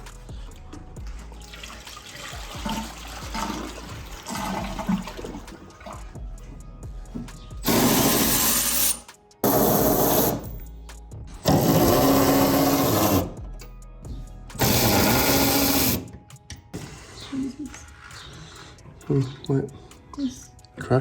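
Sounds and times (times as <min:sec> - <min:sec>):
machine whirring bursts: 0:07.6 - 0:10.4, 0:11.5 - 0:13.4, 0:14.6 - 0:16.1.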